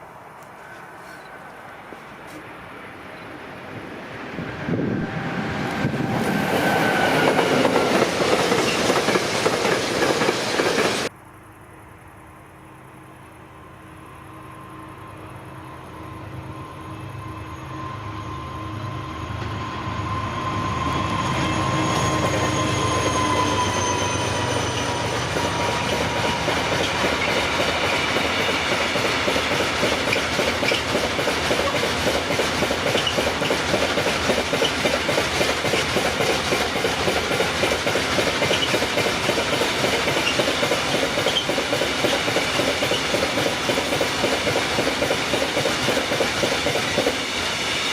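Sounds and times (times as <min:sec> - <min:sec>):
train rolling past: 0:00.0 - 0:11.9, 0:12.8 - 0:47.9
high whine sliding down: 0:04.3 - 0:08.8
wheels clattering over rails: 0:24.6 - 0:47.2.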